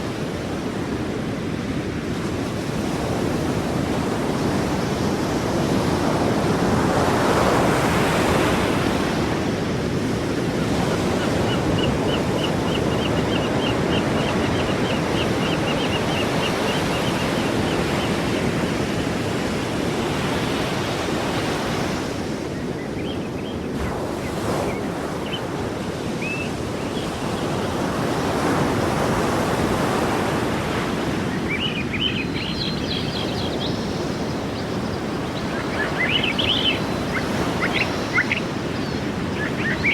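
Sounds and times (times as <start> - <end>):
sea waves breaking on shore: 0.0 - 39.9
faint high chirps: 31.5 - 39.9.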